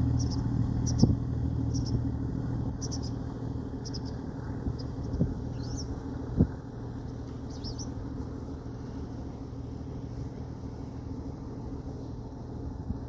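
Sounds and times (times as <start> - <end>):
boat engine droning: 0.0 - 13.0
bird chirps: 7.5 - 7.9.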